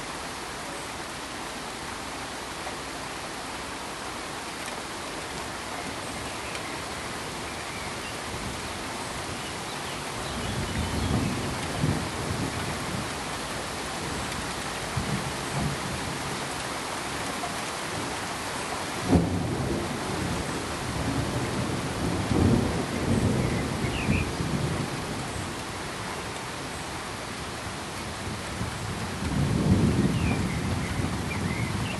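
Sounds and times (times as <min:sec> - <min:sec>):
thunder rumbling: 0:19.0 - 0:25.4, 0:28.1 - 0:31.9.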